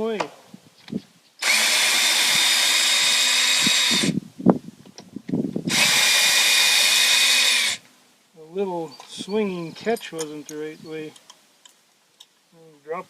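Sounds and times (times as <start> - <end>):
power drill running: 1.4 - 4.2, 5.7 - 7.8.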